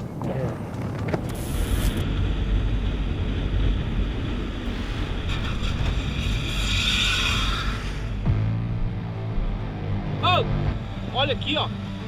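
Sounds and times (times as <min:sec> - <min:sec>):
wind buffeting microphone: 0:00.0 - 0:02.5
low rumble: 0:00.0 - 0:12.0
hiss: 0:04.7 - 0:08.2.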